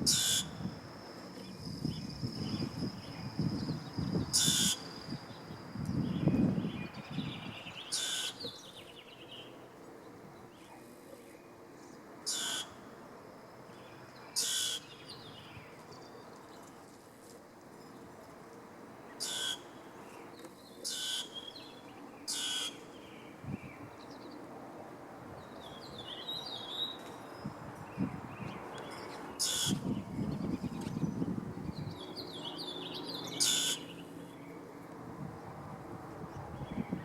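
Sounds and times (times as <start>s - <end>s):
grackles harsh calls: 4.3s - 4.9s, 12.3s - 12.8s, 14.4s - 15.0s, 19.2s - 19.7s, 22.3s - 22.8s, 29.4s - 29.9s, 33.3s - 34.0s.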